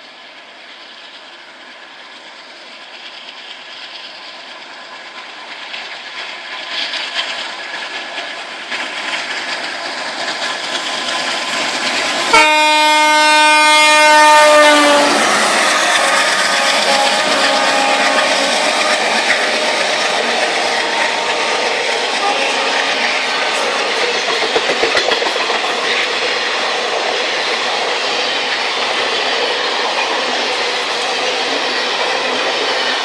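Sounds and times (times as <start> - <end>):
train wheels on track: 0.0 - 33.0
train horn blast: 12.3 - 24.5.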